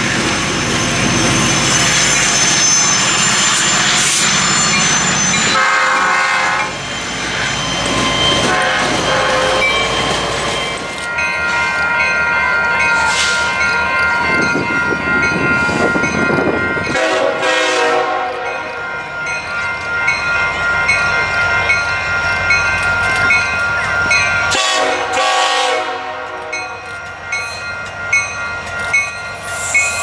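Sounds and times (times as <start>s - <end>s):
diesel locomotives running: 0.0s - 30.0s
rail noise: 0.0s - 30.0s
wheels squealing: 0.6s - 14.5s
locomotive horn: 5.5s - 6.8s, 8.4s - 9.9s, 16.8s - 18.6s, 24.5s - 26.7s.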